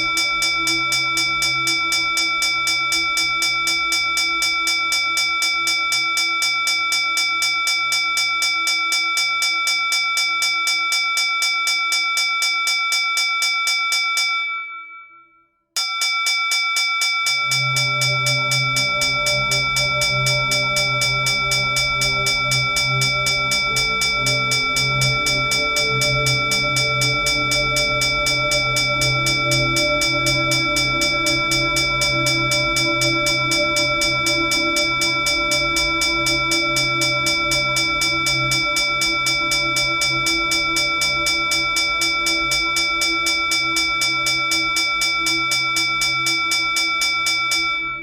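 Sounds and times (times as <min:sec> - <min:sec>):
hand bell rung rapidly: 0:15.8 - 0:47.9.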